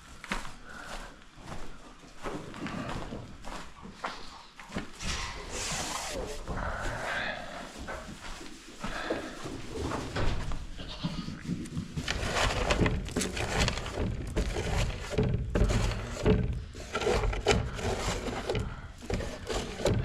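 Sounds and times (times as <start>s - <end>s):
rustling: 4.8s - 20.0s
knocks and clatters: 11.6s - 20.0s.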